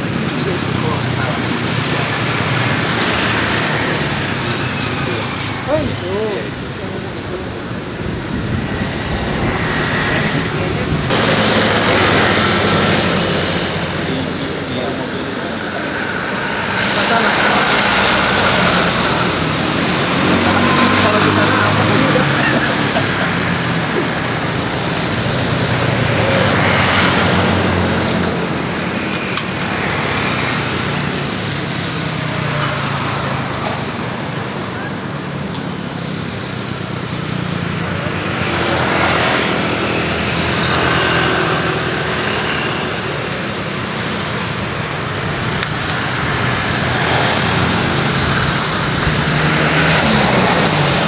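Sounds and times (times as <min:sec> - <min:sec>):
jet engine rumble and hiss: 0:00.0 - 0:29.3.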